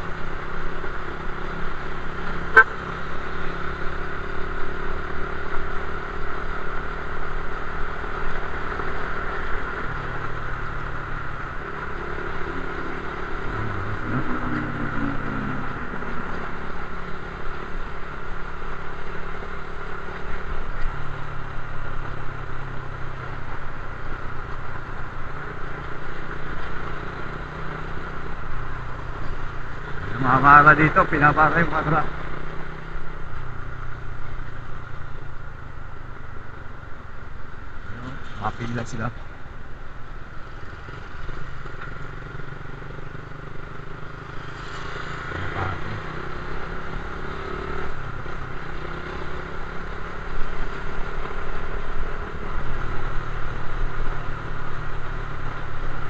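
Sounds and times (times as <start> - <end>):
motorcycle engine running: 0.0 - 38.8
road noise: 0.0 - 56.0.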